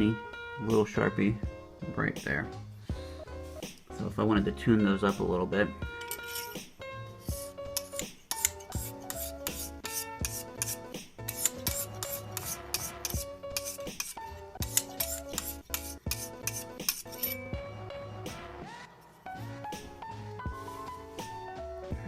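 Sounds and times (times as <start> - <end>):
background music: 0.0 - 22.0
hone rasping across knife edge: 6.0 - 17.6.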